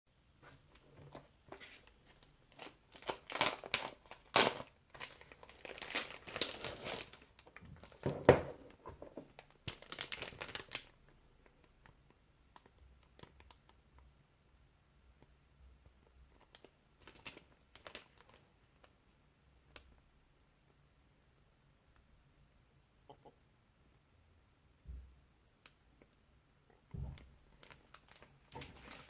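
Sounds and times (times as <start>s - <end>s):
plastic wrapping crinkling: 0.5s - 11.1s, 16.4s - 18.9s, 27.2s - 29.0s.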